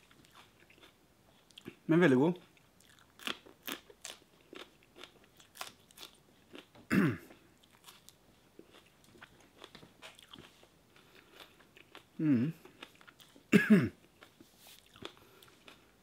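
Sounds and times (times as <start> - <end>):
person chewing crunchy pepper: 0.0 - 1.8, 2.4 - 16.0
low vocal sound: 12.2 - 12.6.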